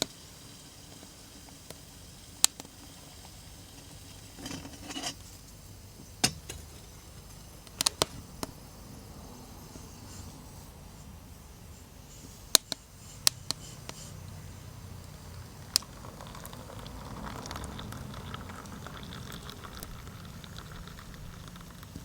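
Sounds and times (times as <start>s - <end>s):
wood fire crackling and popping: 0.8s - 5.1s, 6.2s - 8.6s, 15.0s - 22.0s.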